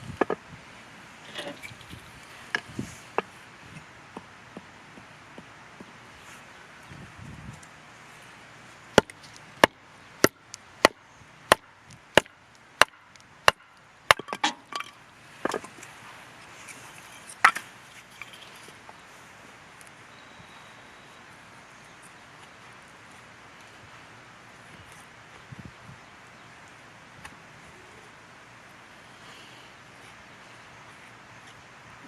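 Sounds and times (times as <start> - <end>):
firewood chopping strikes: 9.0 - 15.7.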